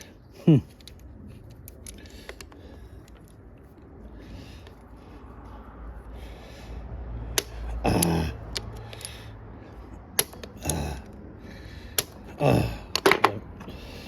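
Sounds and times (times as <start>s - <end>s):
sharp metal clicks: 7.3s - 9.2s, 10.1s - 11.2s, 11.9s - 13.4s.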